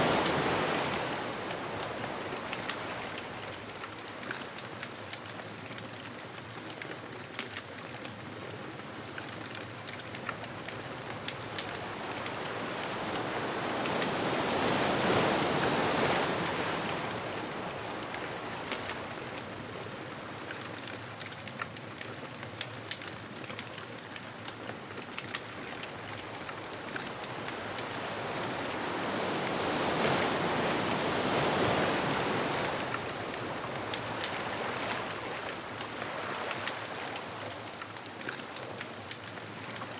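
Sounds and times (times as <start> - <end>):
ocean waves washing onto beach: 0.0 - 39.9
bonfire crackling and popping: 0.1 - 14.8, 15.7 - 39.9.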